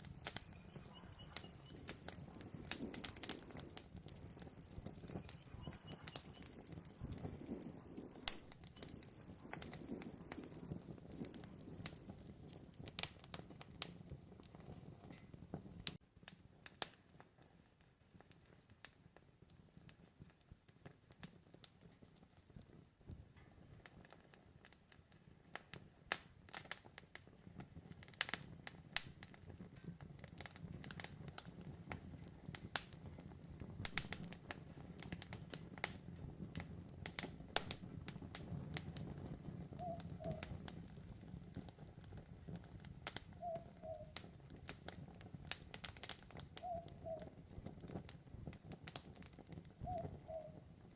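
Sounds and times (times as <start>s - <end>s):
cricket chirping: 0.0s - 12.8s
campfire crackling and popping: 0.0s - 50.9s.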